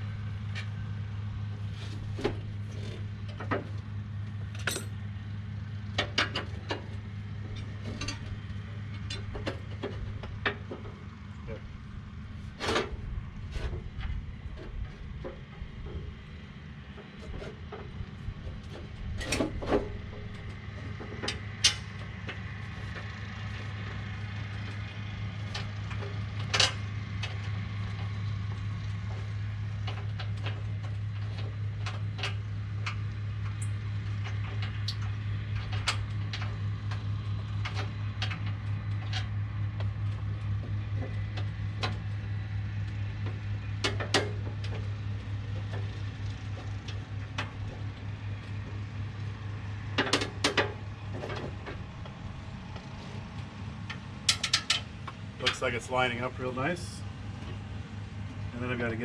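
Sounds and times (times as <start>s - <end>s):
metal clinks and knocks: 4.5s - 5.0s, 53.8s - 55.6s.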